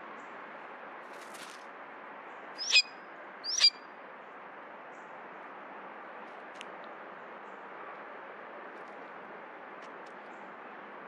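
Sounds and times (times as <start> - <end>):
faint outdoor hiss: 0.0 - 11.0
bird calls sweeping upward: 2.6 - 3.8.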